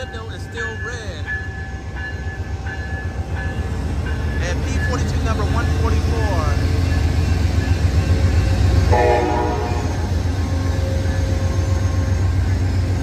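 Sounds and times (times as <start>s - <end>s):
locomotive air horn chord: 8.9s - 10.1s.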